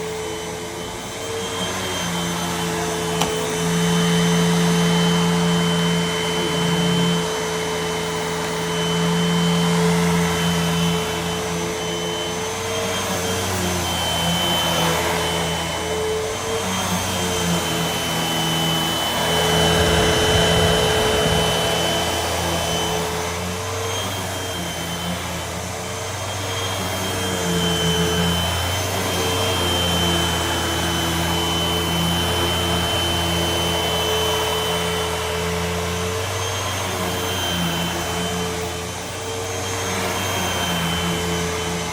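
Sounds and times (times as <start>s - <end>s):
vacuum cleaner running: 0.0s - 41.9s.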